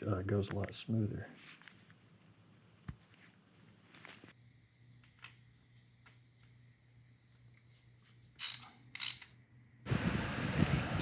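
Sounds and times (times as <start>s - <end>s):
hand tools clicking: 8.4s - 9.3s.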